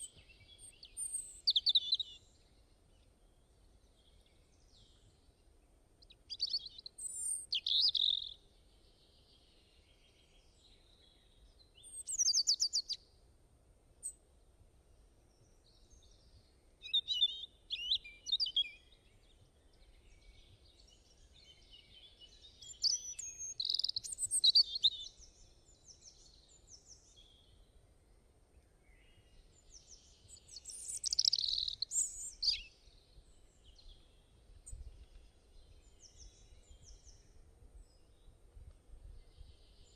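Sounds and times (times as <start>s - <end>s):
faint low background noise: 0.0s - 39.9s
birds chirping and trilling: 11.8s - 13.0s, 16.9s - 27.3s, 29.2s - 37.3s.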